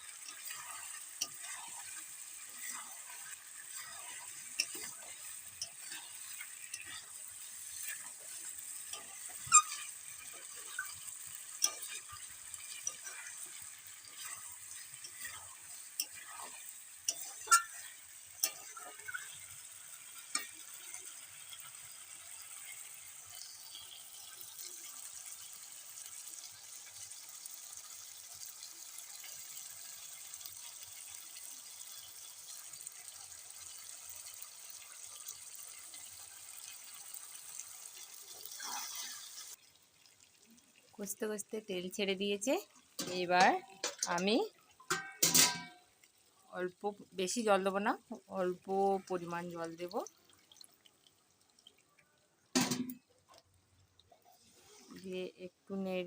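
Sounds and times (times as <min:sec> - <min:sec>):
metal spatula scraping pan: 0:00.0 - 0:21.7, 0:38.4 - 0:39.5, 0:43.0 - 0:45.8
curry sizzling in oil: 0:00.0 - 0:56.0.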